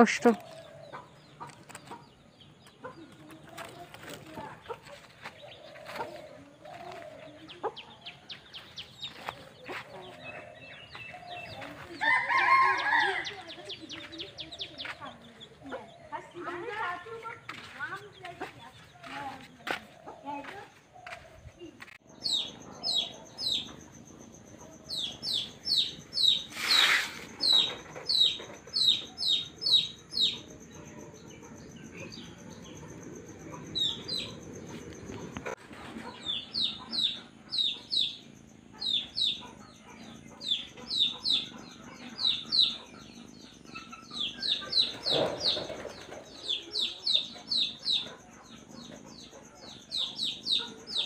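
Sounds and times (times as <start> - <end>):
small bird chirping: 20.0 - 51.0.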